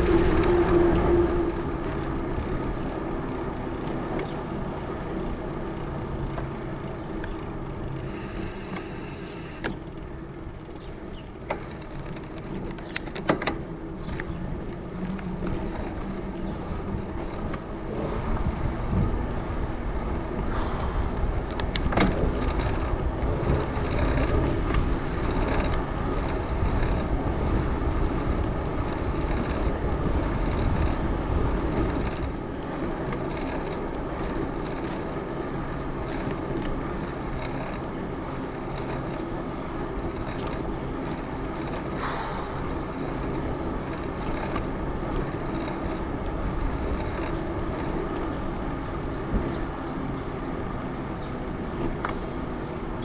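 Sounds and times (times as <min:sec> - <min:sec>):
bike tyres rolling on pavement: 0:00.0 - 0:53.0
sharp clicks or rattles: 0:01.5 - 0:16.0, 0:21.5 - 0:27.1, 0:33.0 - 0:53.0.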